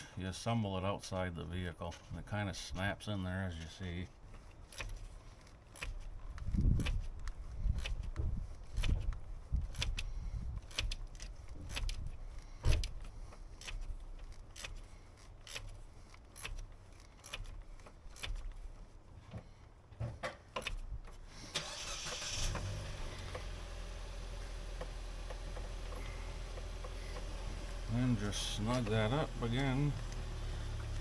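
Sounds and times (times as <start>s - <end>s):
small clicks taps and knocks: 19.3s - 21.2s.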